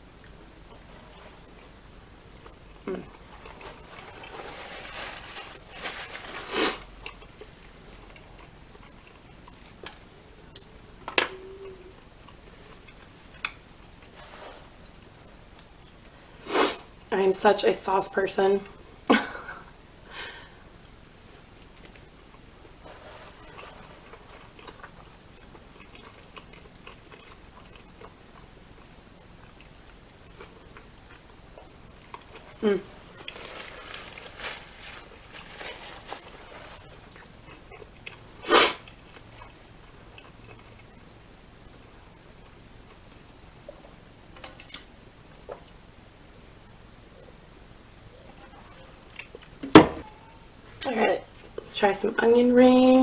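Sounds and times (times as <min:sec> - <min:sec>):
rustling: 0:03.0 - 0:06.9, 0:14.0 - 0:14.9, 0:22.8 - 0:25.6, 0:32.1 - 0:37.6
chewing and mouth noises: 0:07.0 - 0:14.2, 0:21.6 - 0:33.4, 0:36.2 - 0:41.0.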